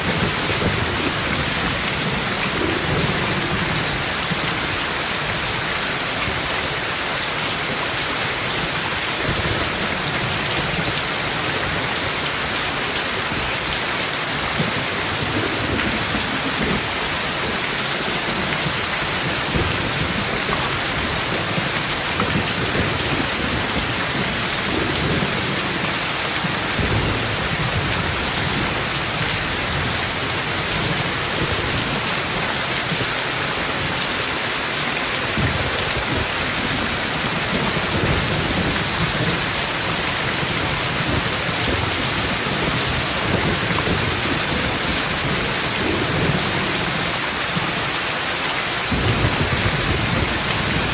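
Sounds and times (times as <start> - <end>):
thunder rumbling: 0.0 - 5.4, 14.4 - 33.1, 35.2 - 47.2, 48.9 - 50.9
steady rain falling: 0.0 - 50.9.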